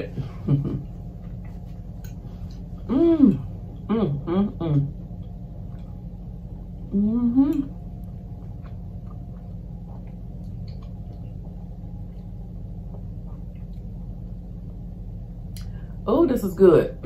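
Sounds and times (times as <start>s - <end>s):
low background hum: 0.0s - 17.0s
chewing clicks: 8.0s - 11.3s.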